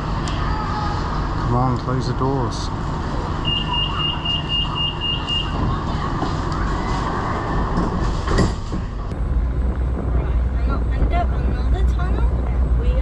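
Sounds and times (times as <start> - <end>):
steady low hum: 0.0 - 13.0
train carriage running noise: 0.0 - 13.0
train door warning beeps: 3.4 - 5.6.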